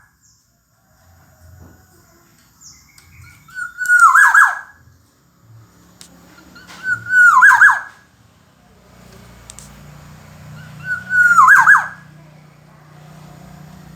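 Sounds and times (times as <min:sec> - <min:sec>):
faint low hum: 0:00.0 - 0:13.9
bird whistling song: 0:02.6 - 0:05.0, 0:06.4 - 0:08.1, 0:10.4 - 0:12.7.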